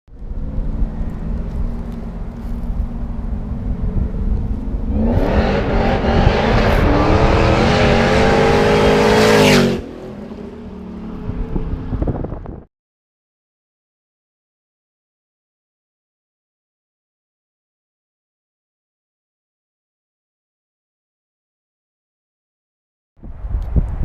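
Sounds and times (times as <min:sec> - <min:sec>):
supercharged engine revving: 0:04.7 - 0:12.0.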